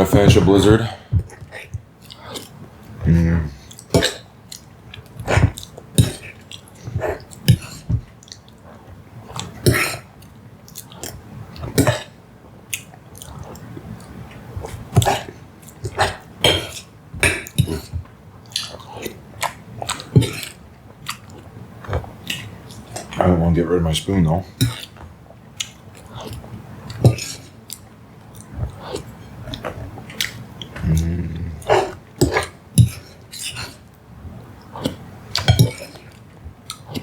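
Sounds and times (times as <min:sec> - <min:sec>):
wet mouth chewing smacks: 0:03.6 - 0:08.6, 0:12.7 - 0:23.2, 0:25.6 - 0:37.0.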